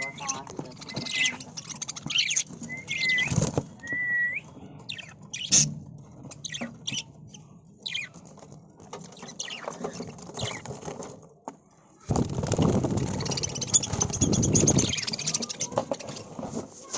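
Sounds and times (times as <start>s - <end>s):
budgerigars chirping: 0.0s - 3.3s, 4.9s - 5.7s
wings flapping and fluttering: 0.0s - 7.0s, 7.9s - 11.4s, 12.1s - 16.9s
birds chattering: 0.0s - 8.4s, 9.0s - 10.8s, 12.4s - 16.4s.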